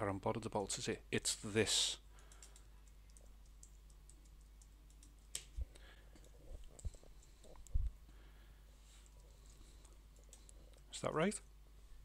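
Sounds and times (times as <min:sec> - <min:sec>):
computer keyboard keystrokes: 0:02.2 - 0:05.5, 0:09.1 - 0:10.6
soft low thumps: 0:06.4 - 0:08.0.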